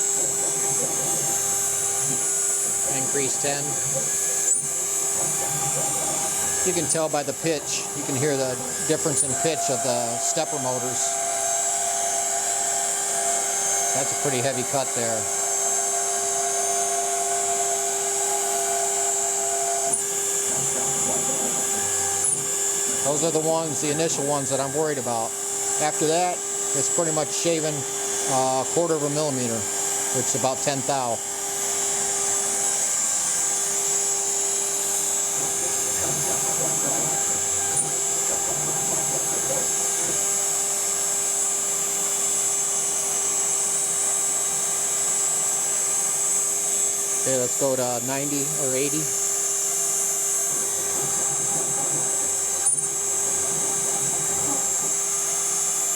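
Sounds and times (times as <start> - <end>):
high spindle whine: 0.0 - 55.9
stepper motor tones: 0.0 - 55.9.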